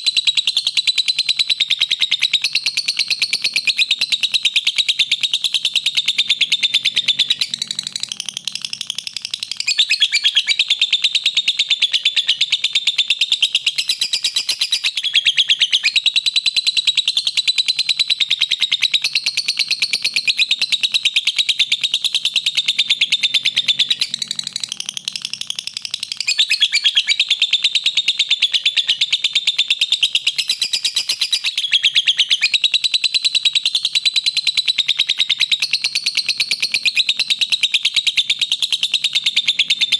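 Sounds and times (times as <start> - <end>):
lovebird chattering trill: 0.0 - 39.9.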